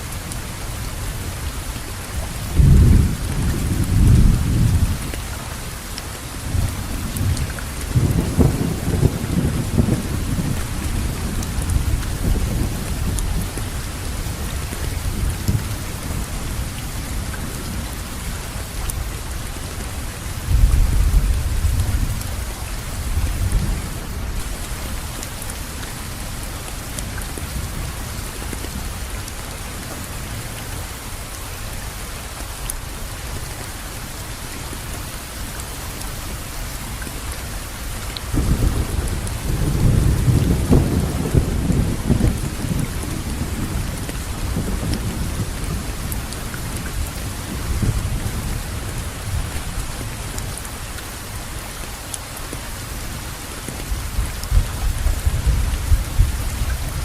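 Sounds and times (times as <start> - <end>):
rain falling: 0.0 - 57.0
thunder rumbling: 2.5 - 5.1, 6.5 - 16.8, 38.3 - 50.6.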